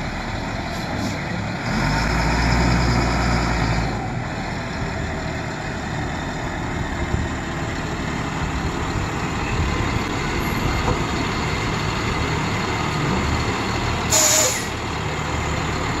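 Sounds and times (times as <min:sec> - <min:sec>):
truck engine running: 0:00.0 - 0:16.0
air hiss: 0:14.1 - 0:14.8.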